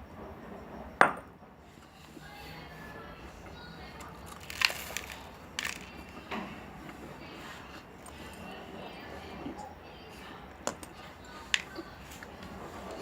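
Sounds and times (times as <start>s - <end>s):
crackers being bitten and crunched: 4.1s - 6.4s.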